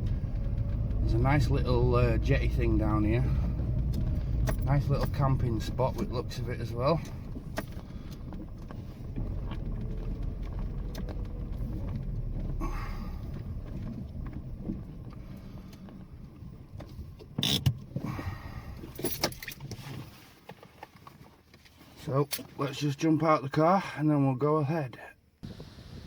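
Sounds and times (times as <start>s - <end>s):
car engine and road rumble: 0.0s - 24.4s, 25.0s - 26.0s.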